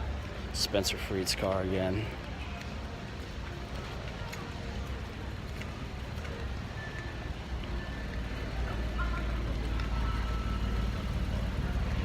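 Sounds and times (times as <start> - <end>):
car meet background noise: 0.0 - 12.0.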